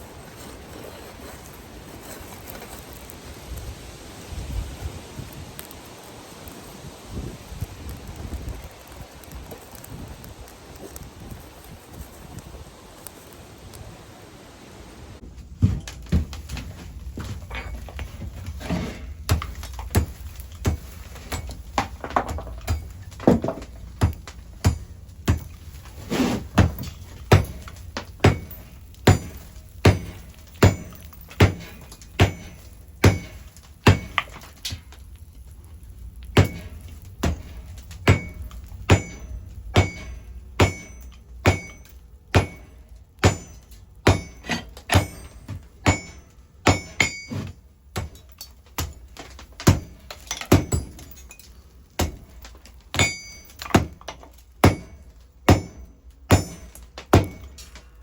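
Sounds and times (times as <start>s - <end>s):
hammer blows on metal anvil: 36.4s - 48.2s.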